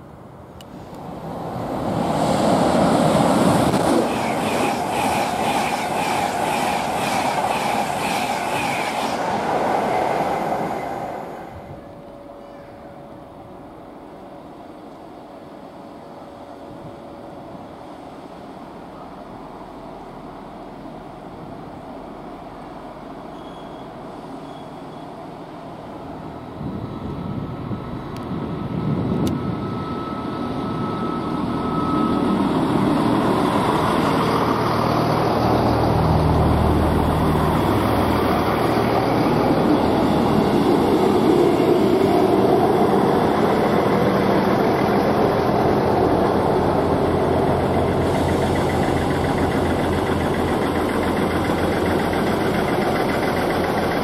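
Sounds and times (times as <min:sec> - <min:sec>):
train passing rumble: 0:00.0 - 0:54.0
diesel engine hum: 0:30.3 - 0:54.0.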